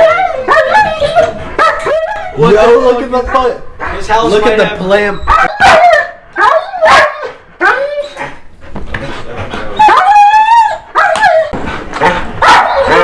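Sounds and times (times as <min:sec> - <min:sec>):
dog barking and yelping: 0:00.0 - 0:02.5, 0:05.2 - 0:08.4, 0:09.7 - 0:13.0
dog howling: 0:00.0 - 0:02.6, 0:05.2 - 0:08.4, 0:09.7 - 0:13.0.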